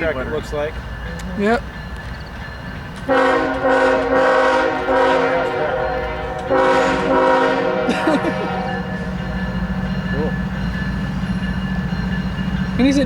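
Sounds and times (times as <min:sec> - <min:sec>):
low engine rumble: 0:00.0 - 0:13.0
locomotive air horn blowing: 0:03.1 - 0:09.0.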